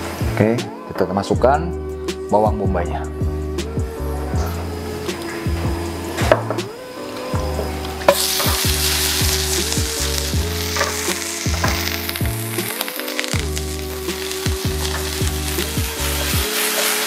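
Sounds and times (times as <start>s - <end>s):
onion sizzling in frying pan: 6.9s - 17.0s.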